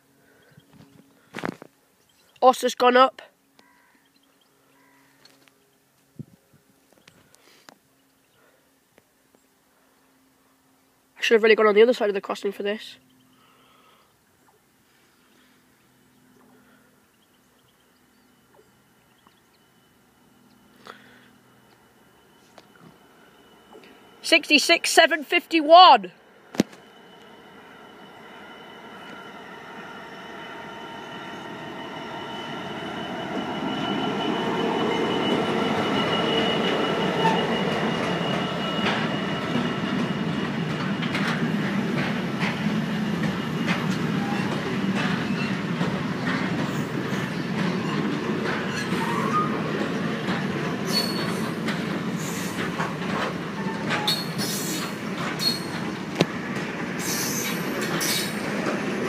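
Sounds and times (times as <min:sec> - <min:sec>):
rumble of train wagons: 0:00.0 - 0:59.0
high wheel squeal: 0:26.7 - 0:40.8, 0:42.4 - 0:56.0, 0:57.0 - 0:58.5
wheels clicking over rail joints: 0:36.7 - 0:59.0.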